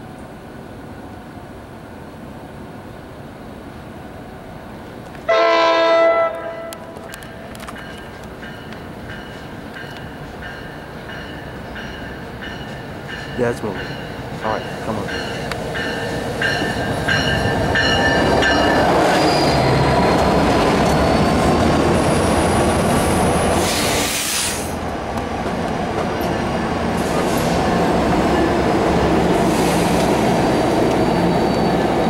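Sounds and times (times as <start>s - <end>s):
train coaches rolling past: 0.0s - 32.0s
bell ringing: 7.8s - 18.9s
high wheel squeal: 18.0s - 20.0s, 20.7s - 22.6s, 30.4s - 32.0s.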